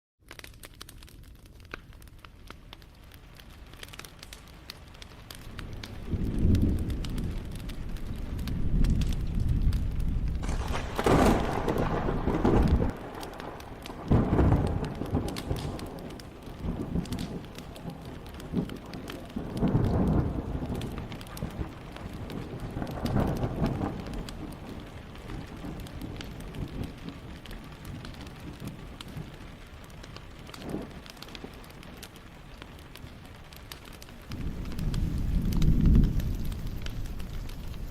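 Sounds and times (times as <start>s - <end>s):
soft hiss of rain: 0.2s - 37.9s
wood fire crackling: 0.2s - 37.9s
rumble of thunder: 5.5s - 29.4s, 34.3s - 37.9s.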